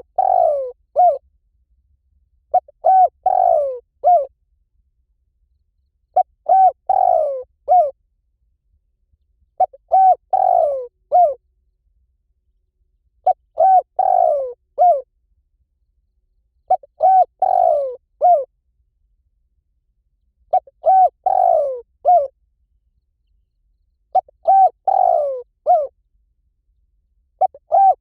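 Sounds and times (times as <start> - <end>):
dove cooing: 0.0 - 1.2, 2.5 - 4.3, 6.1 - 8.0, 9.6 - 11.4, 13.2 - 15.1, 16.7 - 18.5, 20.5 - 22.3, 24.1 - 25.9, 27.4 - 28.0.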